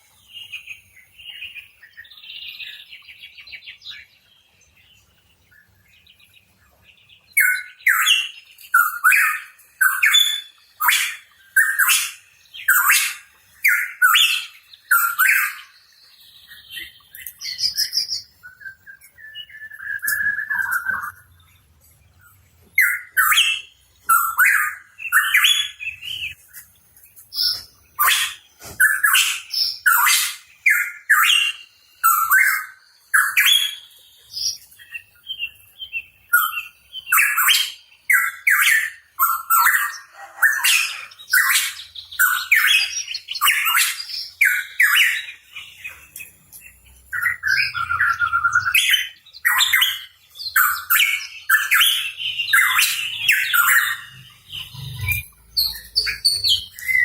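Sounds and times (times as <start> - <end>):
bird chirping harshly: 22.8 - 26.4, 27.3 - 34.6, 36.3 - 57.0.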